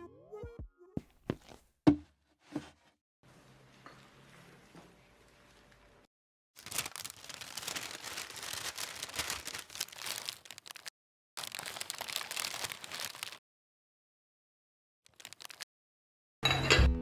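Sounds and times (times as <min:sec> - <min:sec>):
packaging crinkling and rustling: 0:06.6 - 0:13.4, 0:15.1 - 0:15.7.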